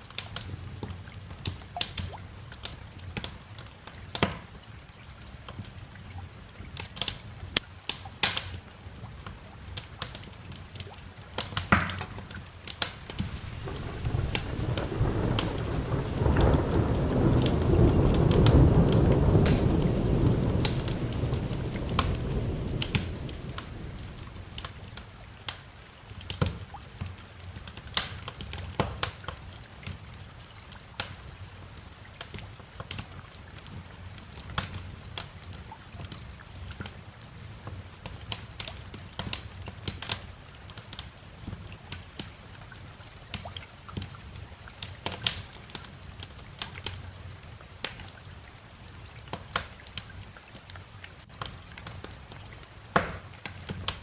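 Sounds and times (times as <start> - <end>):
light rain hiss: 0.0 - 54.0
wood fire crackling: 0.0 - 54.0
thunder rumbling: 13.0 - 25.2.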